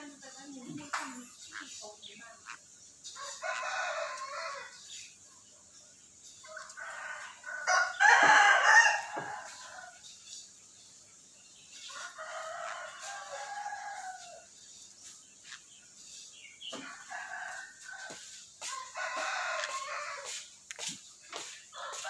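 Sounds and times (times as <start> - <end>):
rooster crowing: 3.2 - 4.8, 6.5 - 10.0, 11.9 - 14.4, 16.8 - 20.4, 21.8 - 22.0.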